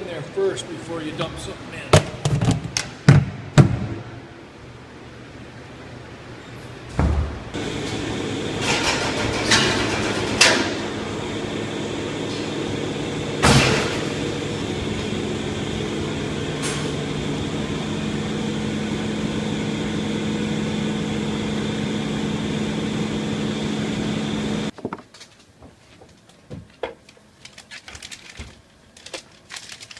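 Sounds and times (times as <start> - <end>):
machine motor humming: 7.6 - 24.7.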